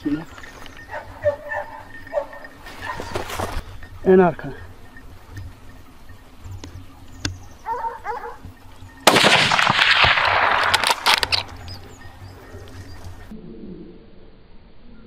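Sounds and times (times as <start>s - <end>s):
gunfire blast: 9.0s - 11.4s
sharp gunshot cracks: 9.1s - 11.5s.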